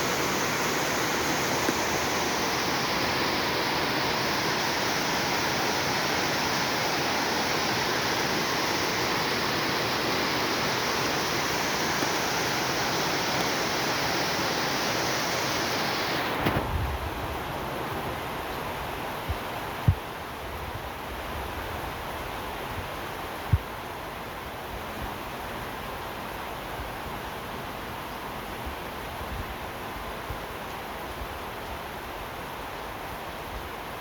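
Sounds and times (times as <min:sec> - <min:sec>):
heavy rain hissing: 0:00.0 - 0:17.9.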